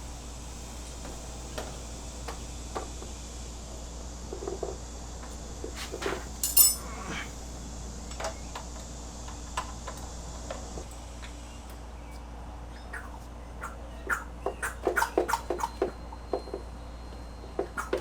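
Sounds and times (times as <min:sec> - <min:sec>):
tools clicking and knocking: 0:06.4 - 0:06.8
sharp metallic clink: 0:06.4 - 0:06.9.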